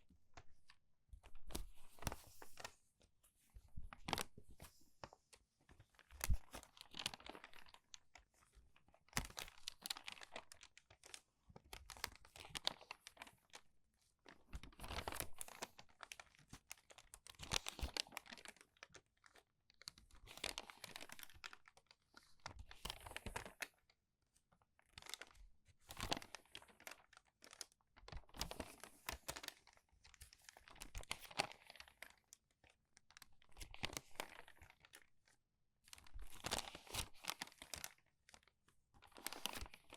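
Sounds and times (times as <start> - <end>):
crinkled paper pages turning: 0.4 - 2.8, 3.6 - 23.8, 24.8 - 39.9.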